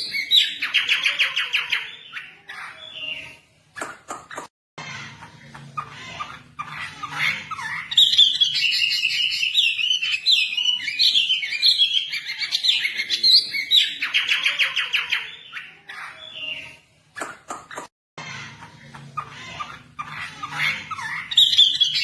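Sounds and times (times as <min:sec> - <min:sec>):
bird singing chirps and whistles: 0:07.9 - 0:15.4, 0:21.2 - 0:22.0.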